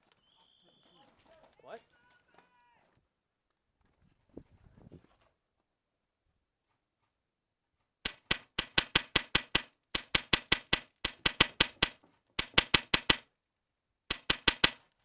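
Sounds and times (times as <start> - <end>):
airsoft gun firing single shots: 8.1 - 13.3, 14.1 - 14.8.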